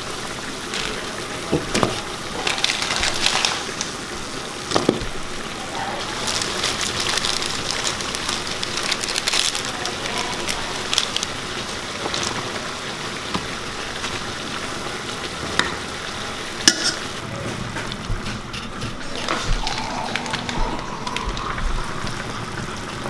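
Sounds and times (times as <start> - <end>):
food sizzling in a pan: 0.0 - 23.0.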